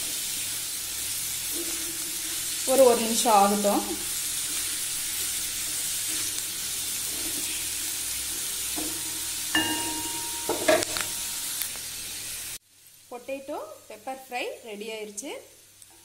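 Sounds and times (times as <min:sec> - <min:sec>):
potatoes sizzling in oil: 0:00.0 - 0:16.0
spatula knocking and scraping pan: 0:08.6 - 0:11.3.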